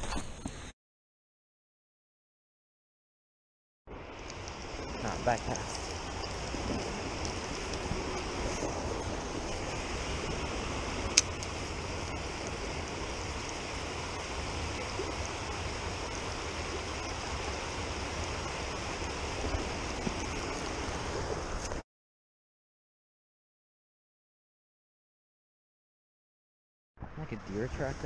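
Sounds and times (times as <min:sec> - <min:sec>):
creek water rushing: 0:03.9 - 0:21.8.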